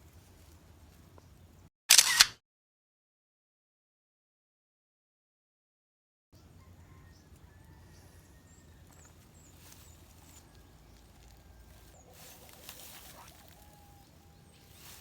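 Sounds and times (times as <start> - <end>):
rustling: 8.9 - 15.0.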